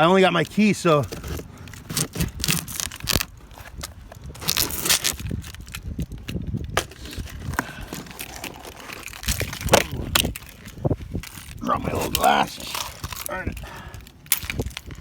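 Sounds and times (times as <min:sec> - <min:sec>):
packing tape and cardboard tearing: 0:01.0 - 0:15.0.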